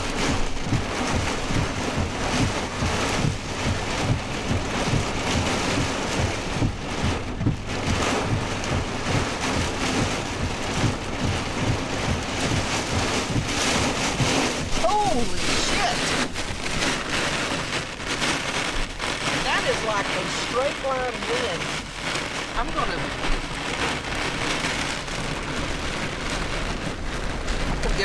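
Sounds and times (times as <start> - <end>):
heavy rain pelting a truck: 0.0 - 28.0
wind gusts buffeting: 0.0 - 28.0.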